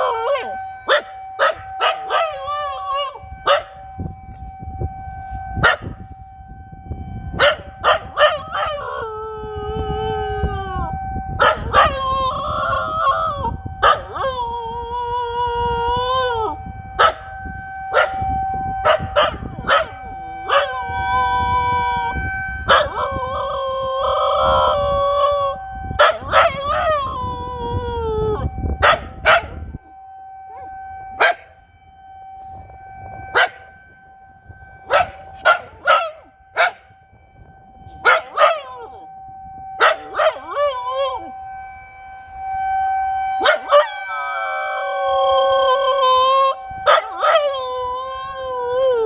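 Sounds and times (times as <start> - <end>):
dog howling: 0.0 - 3.7, 7.8 - 17.2, 22.7 - 29.6, 38.0 - 39.1, 39.8 - 41.4, 43.4 - 49.0
tornado warning siren: 0.0 - 49.0.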